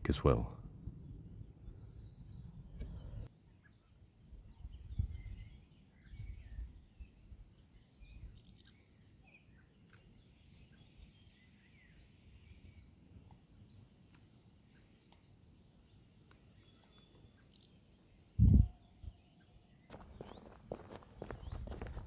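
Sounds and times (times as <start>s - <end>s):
faint bird chirps: 1.6s - 22.0s.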